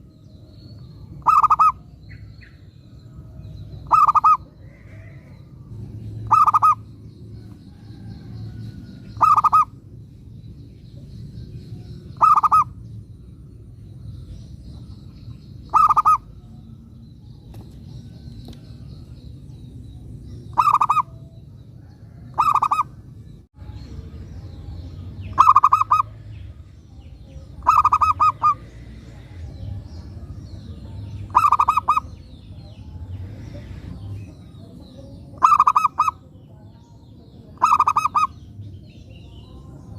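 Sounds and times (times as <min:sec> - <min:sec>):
low background rumble: 0:00.0 - 0:39.9
dove cooing: 0:01.2 - 0:01.8, 0:03.8 - 0:05.3, 0:06.2 - 0:06.8, 0:09.2 - 0:09.8, 0:12.2 - 0:12.8, 0:15.7 - 0:16.3, 0:20.5 - 0:21.2, 0:22.1 - 0:23.0, 0:25.3 - 0:26.2, 0:27.6 - 0:28.7, 0:31.3 - 0:32.2, 0:35.4 - 0:36.2, 0:37.6 - 0:38.4.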